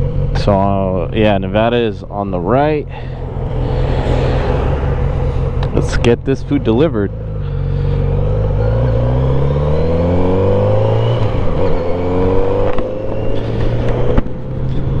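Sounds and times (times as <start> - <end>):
motorcycle accelerating through gears: 7.1 - 15.0.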